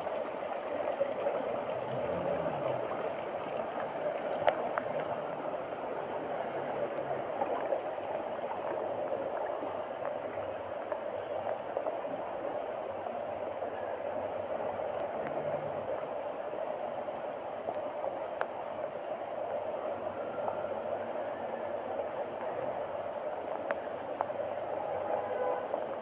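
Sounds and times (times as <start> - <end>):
flowing water rushing: 0.0 - 26.0
faint sharp clicks: 4.4 - 5.1, 18.4 - 18.6, 23.5 - 24.3.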